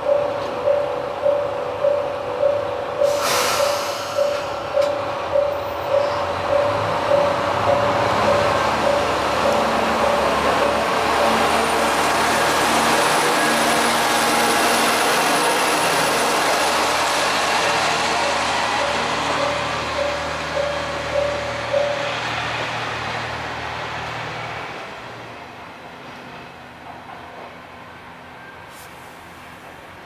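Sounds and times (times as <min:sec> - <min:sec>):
diesel railcar engine and wheels: 0:00.0 - 0:30.0
rapidly repeating tone: 0:04.2 - 0:11.4.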